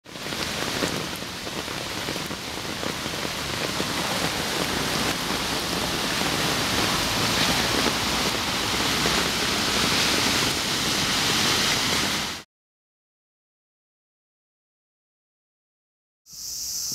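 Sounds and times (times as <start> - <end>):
floodwater rushing in canal: 0.0 - 12.4.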